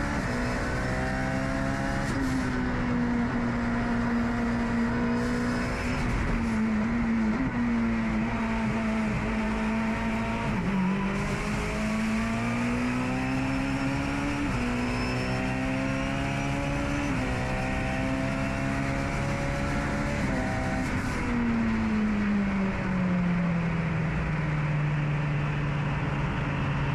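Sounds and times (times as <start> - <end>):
race car engine revving: 0.0 - 21.4.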